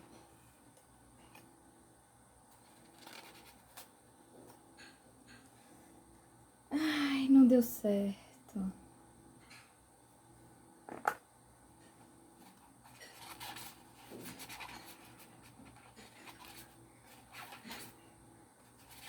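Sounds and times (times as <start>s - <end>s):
objects rustling and scraping: 11.8s - 19.0s.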